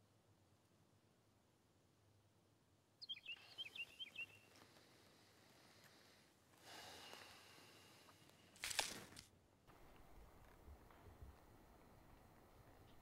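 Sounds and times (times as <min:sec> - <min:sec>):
bird chirps: 0:03.0 - 0:04.6.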